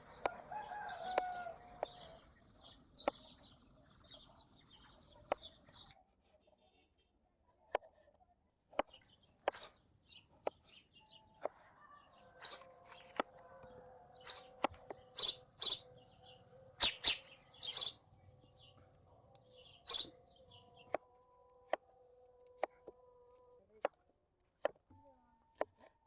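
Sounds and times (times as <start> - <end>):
faint steady tones: 0.0 - 6.0.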